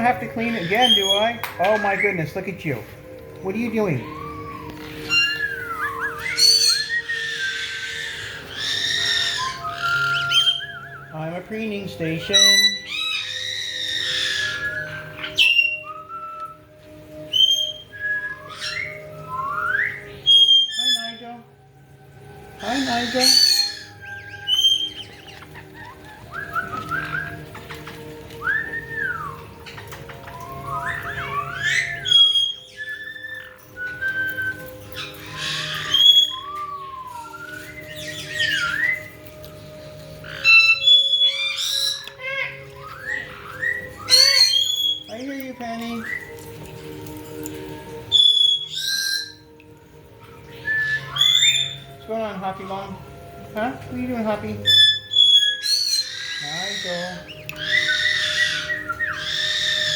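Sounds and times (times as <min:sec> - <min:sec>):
parrots squawking: 0:00.0 - 0:21.5, 0:22.4 - 0:59.9
parrots whistling: 0:00.0 - 0:59.9.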